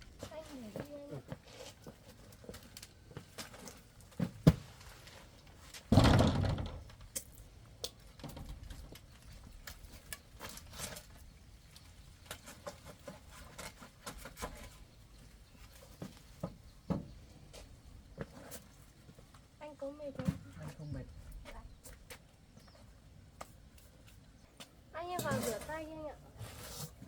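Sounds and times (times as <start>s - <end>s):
small knocks and rustling: 0.2s - 19.5s.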